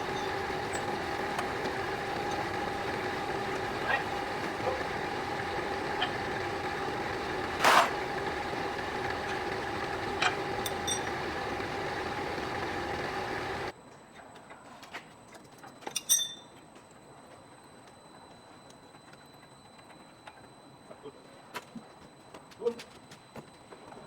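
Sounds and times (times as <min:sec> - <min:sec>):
machine humming: 0:00.0 - 0:13.7.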